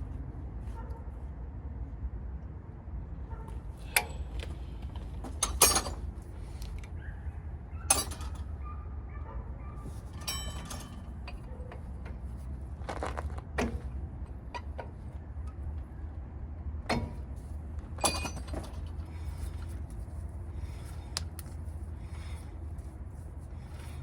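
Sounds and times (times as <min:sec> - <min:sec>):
low steady hum: 0:00.0 - 0:24.0
metal tools clinking: 0:05.4 - 0:06.1, 0:07.9 - 0:08.5, 0:10.0 - 0:11.5, 0:18.0 - 0:19.0.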